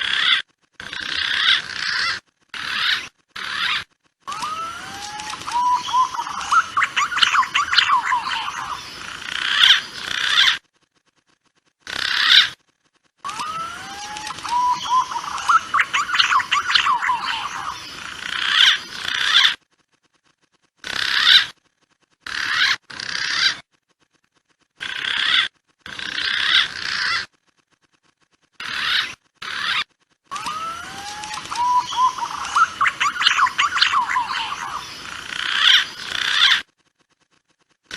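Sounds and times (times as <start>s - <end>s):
pigeon lure calls: 0.0s - 10.6s, 11.9s - 12.6s, 13.3s - 19.6s, 20.8s - 21.6s, 22.2s - 23.6s, 24.8s - 27.3s, 28.6s - 36.7s.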